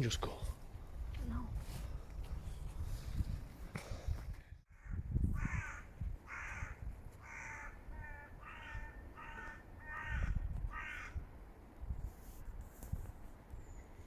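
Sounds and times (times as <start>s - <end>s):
wind rumble on microphone: 0.4s - 14.0s
crow cawing: 4.7s - 11.2s.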